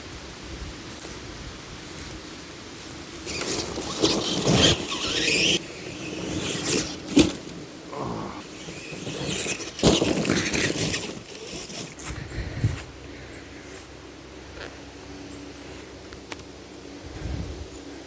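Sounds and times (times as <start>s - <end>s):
electric motor whining: 2.8s - 12.0s.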